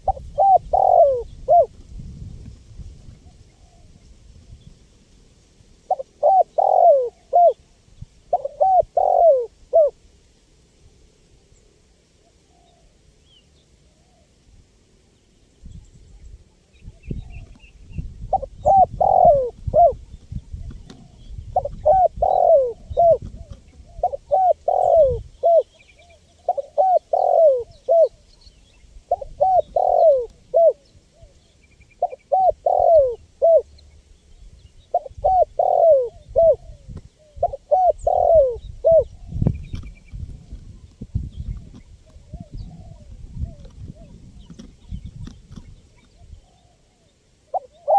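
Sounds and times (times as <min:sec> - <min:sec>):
dove cooing: 0:00.0 - 0:01.8, 0:05.9 - 0:07.6, 0:08.3 - 0:10.0, 0:18.2 - 0:28.3, 0:29.1 - 0:33.8, 0:34.8 - 0:40.8, 0:41.5 - 0:47.9.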